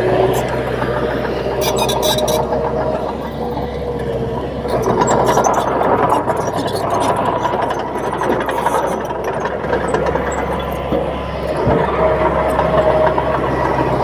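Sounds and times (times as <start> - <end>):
bulldozer diesel engine running: 0.0 - 14.0
thin steady squeal: 0.2 - 3.8.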